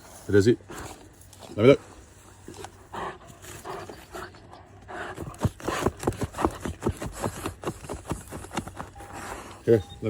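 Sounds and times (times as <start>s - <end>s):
dog panting: 2.5s - 9.5s.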